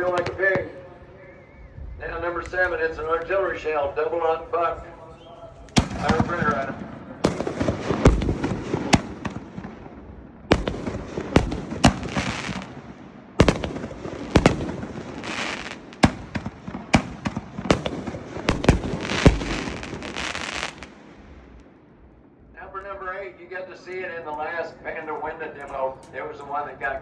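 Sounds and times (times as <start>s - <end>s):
firework crackling: 7.2s - 9.7s, 10.5s - 21.4s
firework shell bangs: 7.3s - 9.4s.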